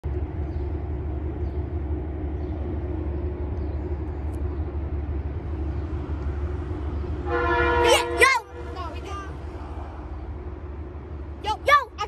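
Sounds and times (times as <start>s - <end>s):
constant hum: 0.0s - 12.0s
train rumbling: 0.0s - 12.0s.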